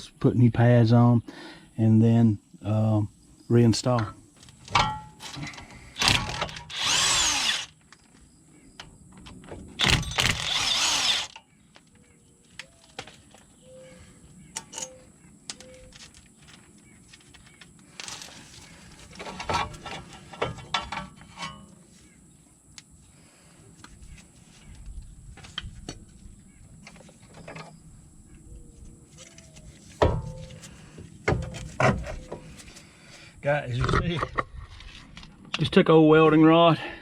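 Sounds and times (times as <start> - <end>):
power tool spinning bolts: 6.0 - 7.8, 9.8 - 11.4
metallic clicks and clinks: 14.6 - 15.0.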